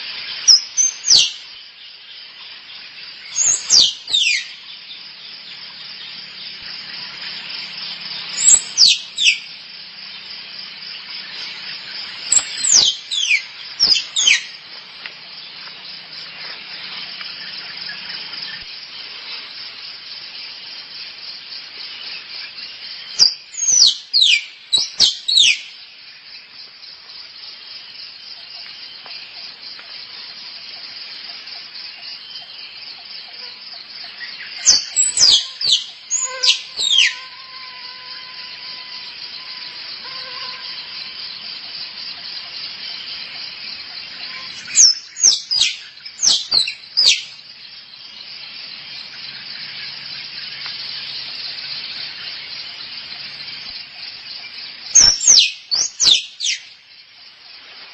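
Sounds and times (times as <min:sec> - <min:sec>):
squirrel squeaky calls: 0:34.7 - 0:37.3.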